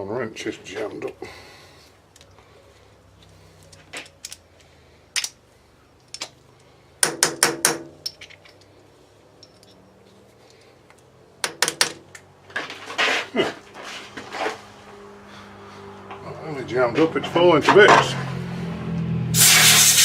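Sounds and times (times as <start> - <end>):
wrench knocking: 7.0 - 8.5
metallic clicks: 8.0 - 8.8.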